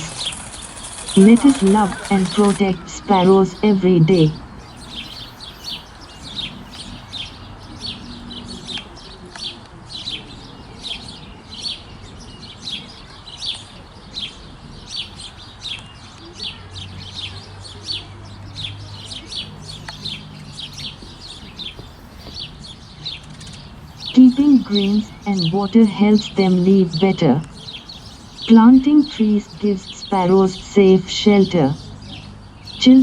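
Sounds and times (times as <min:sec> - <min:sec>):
sparrows chirping: 0:00.0 - 0:33.0.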